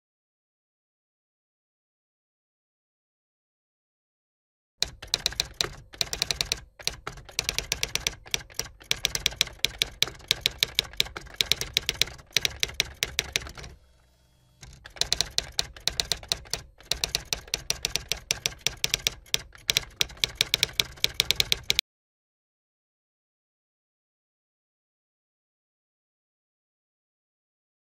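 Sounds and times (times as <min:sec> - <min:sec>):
typewriter key clicks: 0:04.8 - 0:13.8, 0:14.6 - 0:21.8.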